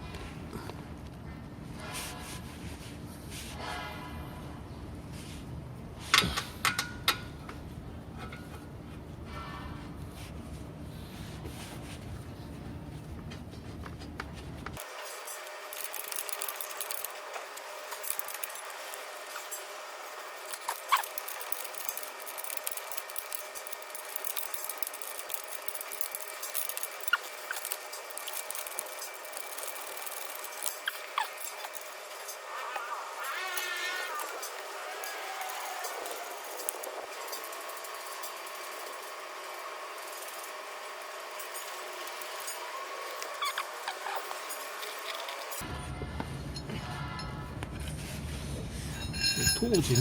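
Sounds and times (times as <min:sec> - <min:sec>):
steady background noise: 0:00.0 - 0:50.0
tools and bolts clinking: 0:14.8 - 0:45.6, 0:48.9 - 0:50.0.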